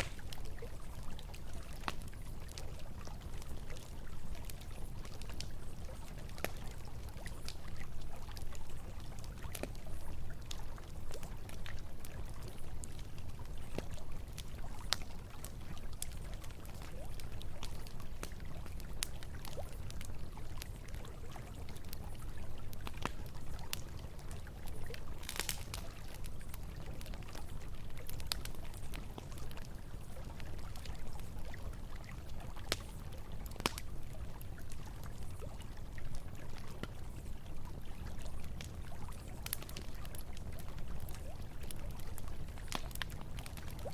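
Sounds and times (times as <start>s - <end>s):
flowing river water: 0.0s - 28.4s
campfire crackling and popping: 0.0s - 43.9s.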